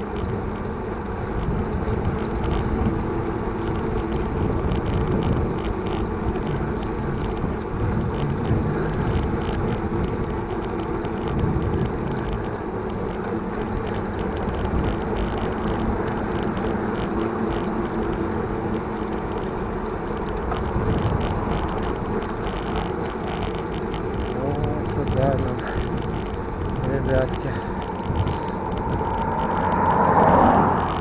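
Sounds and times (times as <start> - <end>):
bicycle road rumble: 0.0 - 31.0
light rattles: 0.0 - 31.0
wind rushing over microphone: 20.3 - 23.3, 24.0 - 31.0.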